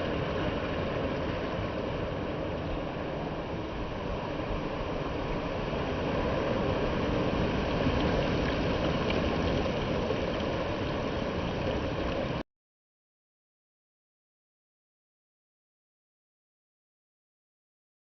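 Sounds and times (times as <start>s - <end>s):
sea water rushing: 0.0s - 12.4s
wind: 0.0s - 12.4s.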